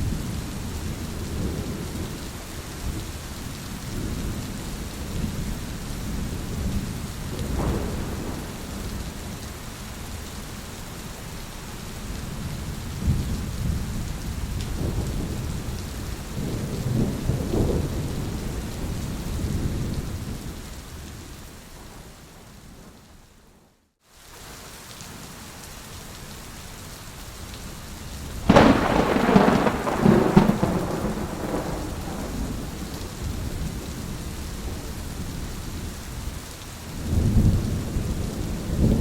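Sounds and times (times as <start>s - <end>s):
steady rain: 0.0s - 39.0s
thunder rumbling: 3.9s - 9.6s, 12.8s - 20.6s, 28.3s - 35.5s.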